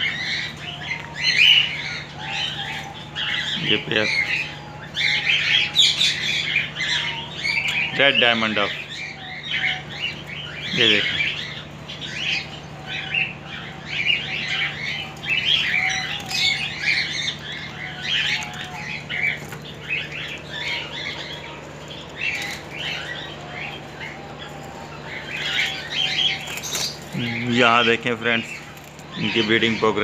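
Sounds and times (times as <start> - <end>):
small birds chirping: 0.0 - 30.0
steady low hum: 0.0 - 30.0.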